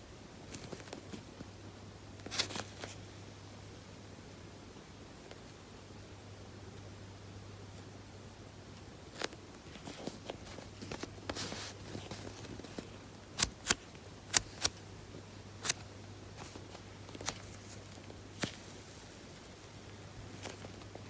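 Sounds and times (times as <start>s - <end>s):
low steady hum: 0.0s - 21.0s
foam toy rustling: 9.1s - 14.8s.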